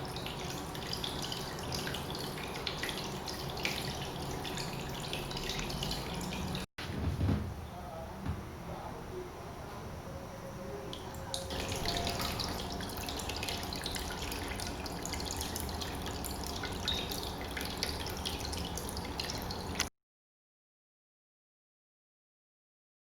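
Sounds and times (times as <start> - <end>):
water trickling and dripping: 0.0 - 6.7, 10.9 - 19.9.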